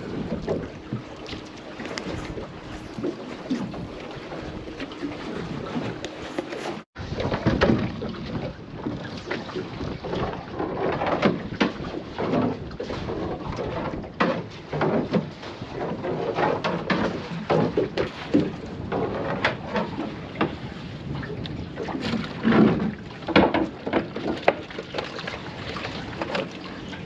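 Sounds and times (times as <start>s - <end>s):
wind noise: 0.0s - 14.2s, 17.0s - 27.0s
sea wash: 0.0s - 27.0s
water slapping against boat hull: 0.0s - 27.0s.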